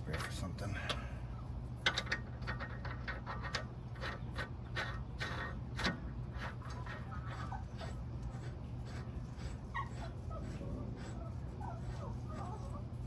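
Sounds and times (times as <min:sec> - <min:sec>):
metal parts clicking and rubbing: 0:01.8 - 0:11.1.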